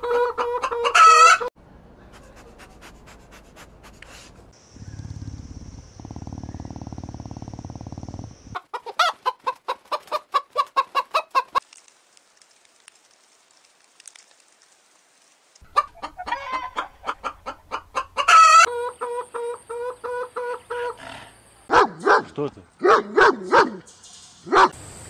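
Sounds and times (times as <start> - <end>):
hen clucking: 0.0 - 1.5, 8.5 - 11.6, 15.7 - 21.2.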